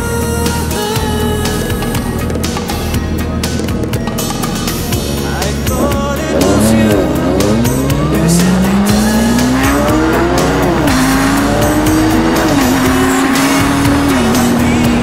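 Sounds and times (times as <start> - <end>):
music with a beat: 0.0 - 15.0
motorcycle engine pulling away: 5.4 - 15.0.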